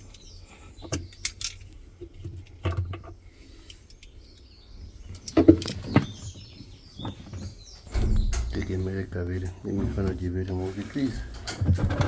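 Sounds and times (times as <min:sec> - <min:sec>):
faint birds chirping: 0:00.0 - 0:12.0
sharp knocks and clatters: 0:07.0 - 0:10.3.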